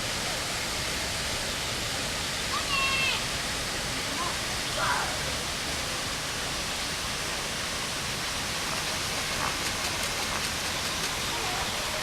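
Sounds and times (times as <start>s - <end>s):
rushing falling water: 0.0s - 12.0s.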